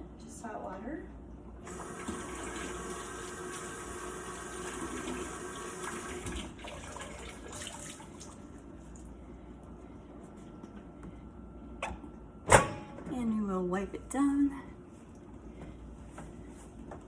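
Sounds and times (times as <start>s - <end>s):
tap water splashing in sink: 1.7s - 3.8s, 4.4s - 8.4s.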